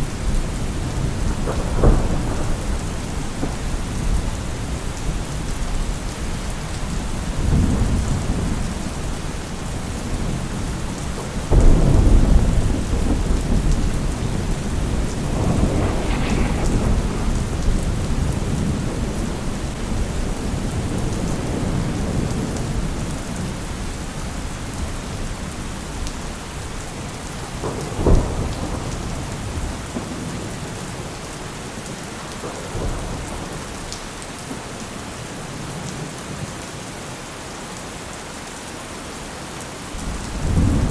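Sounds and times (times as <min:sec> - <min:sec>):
rolling thunder: 0:00.0 - 0:34.2, 0:40.0 - 0:40.9
heavy rain: 0:00.0 - 0:40.9
loud thunderclap: 0:00.2 - 0:05.9, 0:11.1 - 0:23.5, 0:27.4 - 0:31.2, 0:40.0 - 0:40.9
sharp thunder crack: 0:00.8 - 0:04.7, 0:11.5 - 0:22.2.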